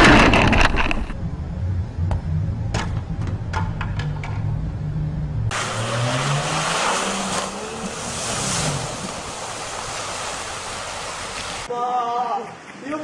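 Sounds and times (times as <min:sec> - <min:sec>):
vehicle engine changing pitch: 0:04.2 - 0:11.4
loud rushing noise: 0:05.0 - 0:11.6.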